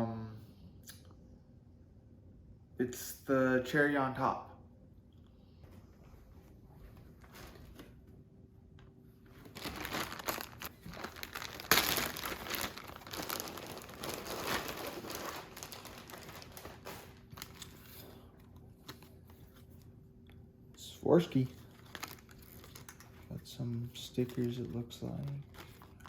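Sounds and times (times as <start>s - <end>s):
packaging crinkling and rustling: 9.3s - 19.9s, 21.3s - 26.0s.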